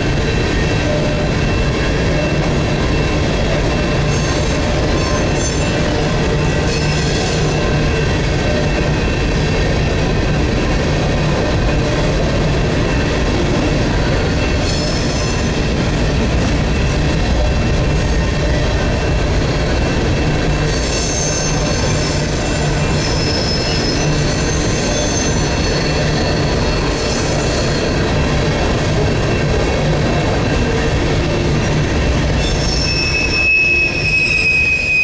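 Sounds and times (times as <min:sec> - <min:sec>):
train wheels rumbling on rails: 0:00.0 - 0:35.0
high-pitched wheel squeal: 0:04.0 - 0:08.1, 0:14.6 - 0:28.0, 0:32.4 - 0:35.0.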